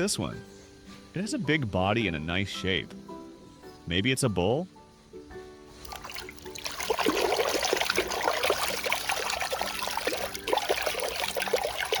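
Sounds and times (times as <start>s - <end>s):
water pouring and splashing: 5.8s - 12.0s.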